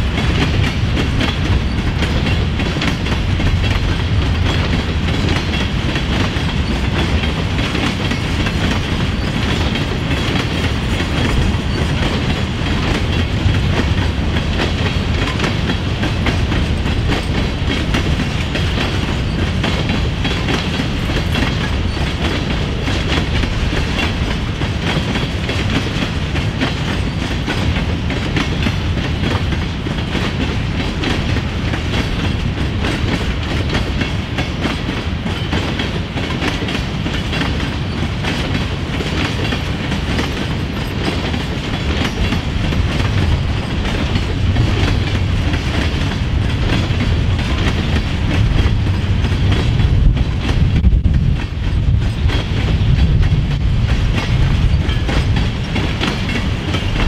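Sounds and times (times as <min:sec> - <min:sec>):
wheels clicking over rail joints: 0:00.0 - 0:57.0.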